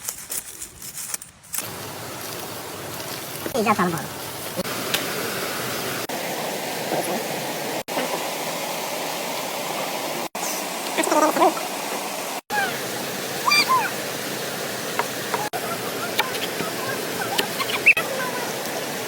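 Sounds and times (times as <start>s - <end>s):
river water rushing: 4.2s - 19.0s
short chirping calls: 13.4s - 13.9s, 17.4s - 18.0s.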